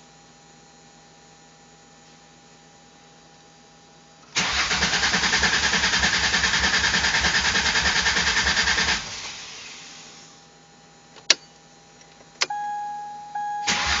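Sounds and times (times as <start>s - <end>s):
engine cranking without starting: 4.4s - 9.2s, 13.7s - 14.0s.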